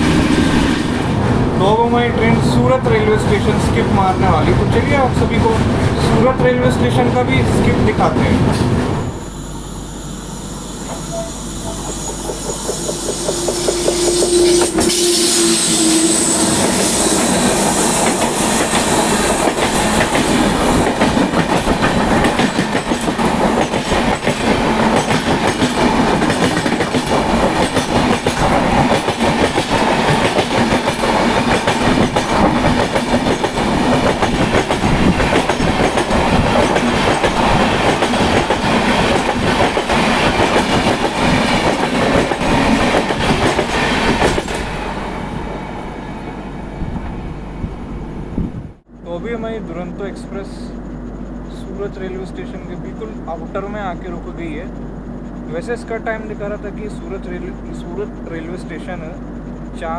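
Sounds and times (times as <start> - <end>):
train wheels clattering over rails: 0.0 - 1.3, 10.9 - 45.0.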